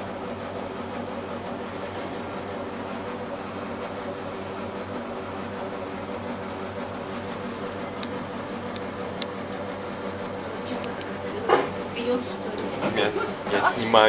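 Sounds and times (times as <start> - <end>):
elevator hum: 0.0 - 14.0.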